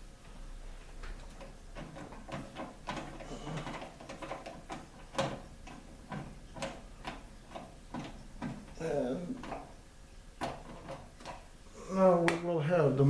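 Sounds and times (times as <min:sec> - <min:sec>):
clicks and knocks on sheet metal: 0:01.0 - 0:08.8.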